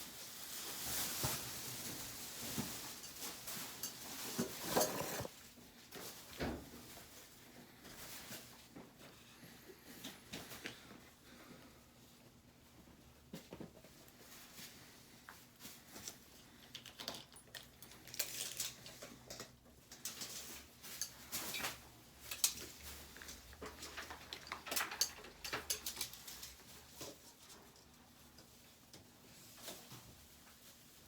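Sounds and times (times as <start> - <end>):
hands rustling and scraping: 0.5 - 5.4.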